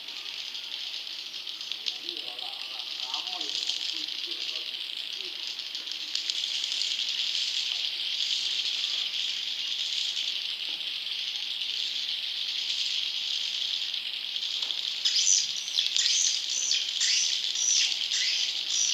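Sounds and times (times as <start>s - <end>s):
high-pitched bird chittering: 15.0s - 18.9s
loud bird chirps: 15.0s - 18.9s.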